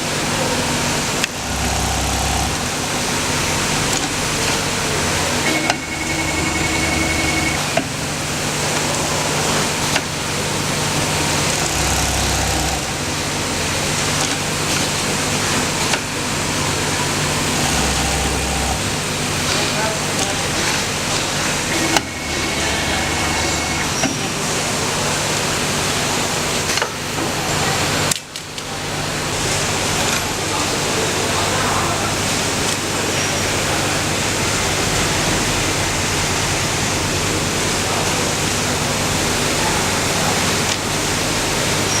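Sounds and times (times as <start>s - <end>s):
sewing machine running: 0.6s - 19.5s, 20.5s - 24.1s.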